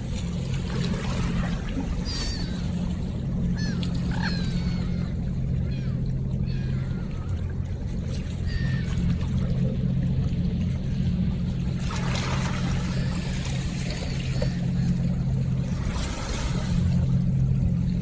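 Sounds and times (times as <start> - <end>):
river water splashing: 0.0 - 18.0
steady low hum: 0.0 - 18.0.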